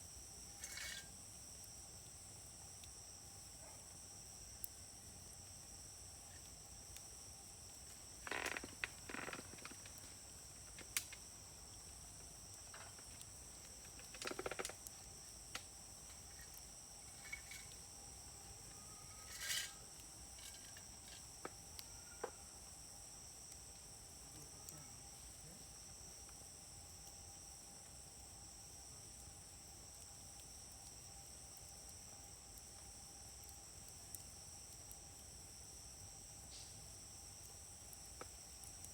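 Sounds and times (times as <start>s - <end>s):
high-pitched insect chorus: 0.0s - 38.9s
wood fire crackling and popping: 0.1s - 3.4s, 4.2s - 22.0s, 29.2s - 38.9s.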